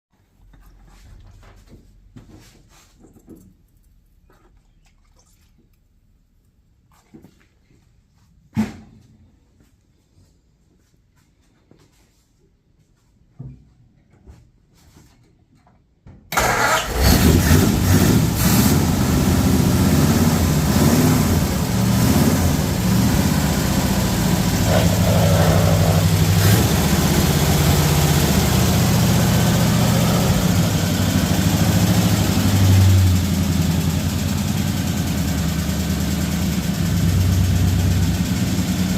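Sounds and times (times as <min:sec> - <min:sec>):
car engine starting and idling: 0:16.3 - 0:38.9.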